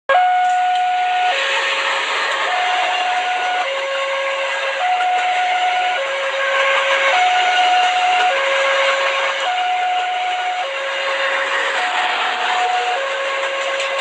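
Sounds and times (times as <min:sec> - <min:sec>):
two-note electronic tone: 0:00.1 - 0:01.4, 0:09.4 - 0:10.7.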